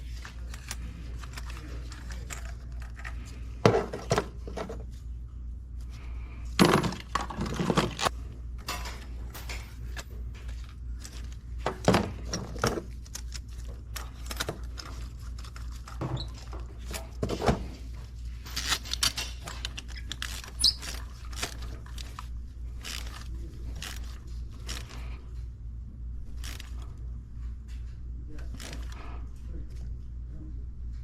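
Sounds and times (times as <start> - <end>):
hand tools clicking and scraping: 0.0 - 4.8, 6.7 - 8.1, 8.7 - 25.2
steady low hum: 0.0 - 31.0.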